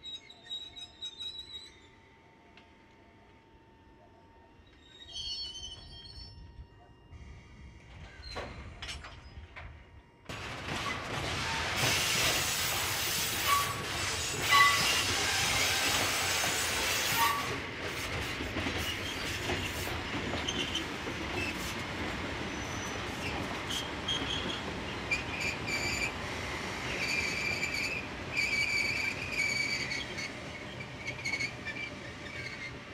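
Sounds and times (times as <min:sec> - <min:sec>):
freight train wheels on rails: 0:07.7 - 0:32.9
high-pitched wheel squeals: 0:13.4 - 0:13.9, 0:17.1 - 0:17.6, 0:26.9 - 0:32.8.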